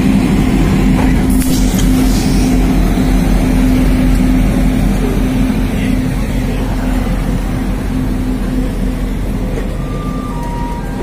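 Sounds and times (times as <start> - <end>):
low hum: 0.0 - 11.0
train coach rumbling: 0.0 - 11.0.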